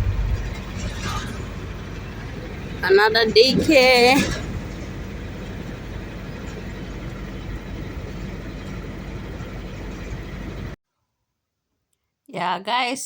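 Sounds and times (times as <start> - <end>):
car engine and road noise: 0.0 - 10.8.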